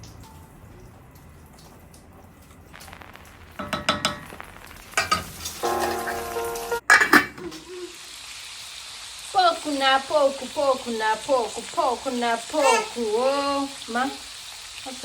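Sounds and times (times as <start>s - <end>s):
food sizzling in a pan: 2.8s - 15.0s
metal pots clinking and scraping: 5.0s - 7.5s.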